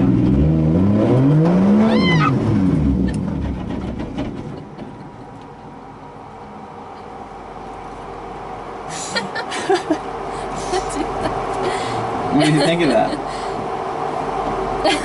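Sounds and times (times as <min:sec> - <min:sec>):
car engine revving: 0:00.0 - 0:04.5.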